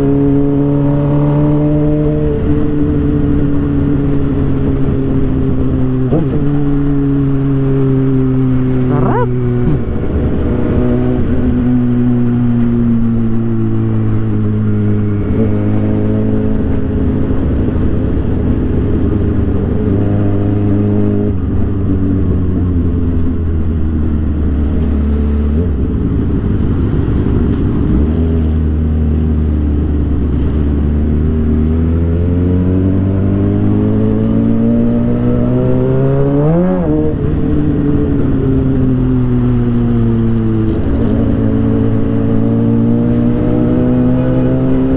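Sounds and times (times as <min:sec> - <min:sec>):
motorcycle engine cruising: 0:00.0 - 0:44.9.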